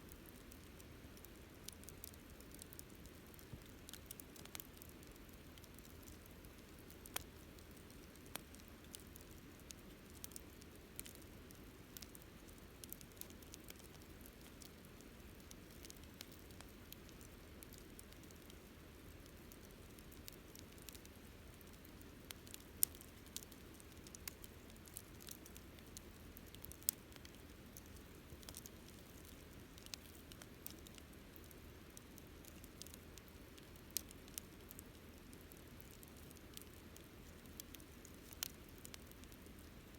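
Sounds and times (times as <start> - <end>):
campfire crackling: 0.1 - 39.9
fire popping and snapping: 0.1 - 39.9.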